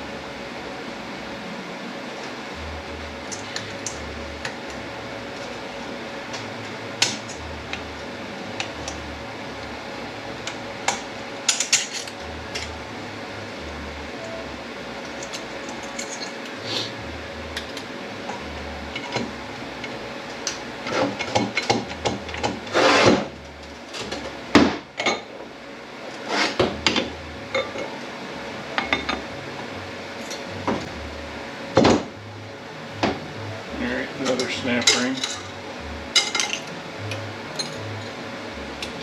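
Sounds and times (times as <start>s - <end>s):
metal parts clinking and knocking: 11.5s - 12.7s, 15.2s - 16.4s.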